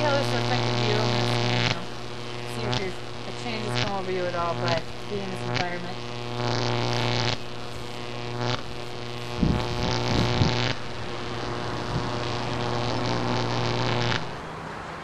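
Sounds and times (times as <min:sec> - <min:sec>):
electronic scanner buzzing hum: 0:00.0 - 0:14.7
soft low thumps: 0:04.6 - 0:14.3.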